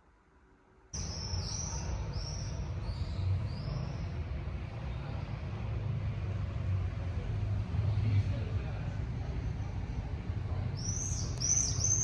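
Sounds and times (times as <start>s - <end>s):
low rumble of distant traffic: 0.0s - 12.0s
small bird chirping: 1.0s - 4.2s, 10.8s - 12.0s.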